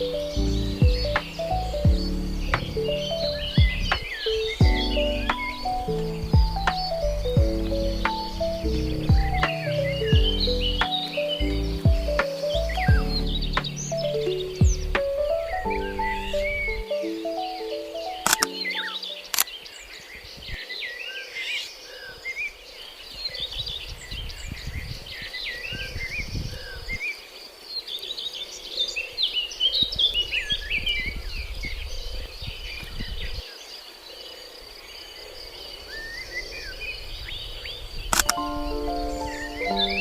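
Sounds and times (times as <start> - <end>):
low rumbles: 0.0 - 16.8
small birds chirping: 0.0 - 40.0.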